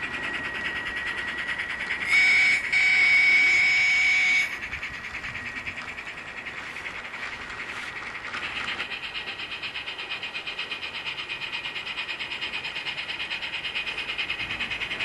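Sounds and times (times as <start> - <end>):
steam exhaust chuffs: 0.0 - 15.0
steam whistle blasts: 2.0 - 4.5.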